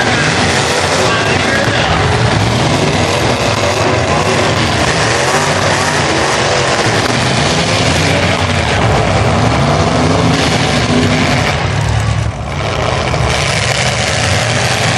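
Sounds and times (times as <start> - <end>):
truck engine running hard: 0.0 - 14.9.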